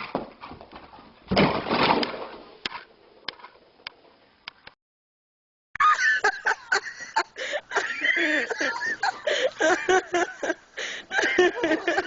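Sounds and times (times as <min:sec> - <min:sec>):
people laughing loudly: 0:05.8 - 0:12.0.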